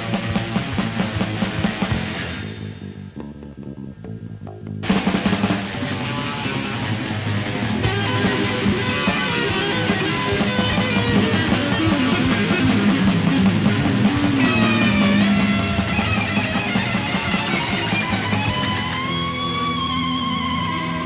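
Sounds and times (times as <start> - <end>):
distorted guitar riffing: 0.0 - 21.0
drums: 0.0 - 21.0
high lead guitar line bending: 0.0 - 21.0.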